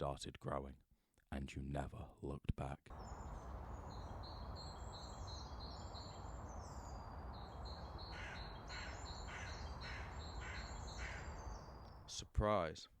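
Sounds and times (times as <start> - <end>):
low background noise: 1.2 - 13.0
birds chirping: 2.9 - 12.2
crow cawing: 7.6 - 11.9.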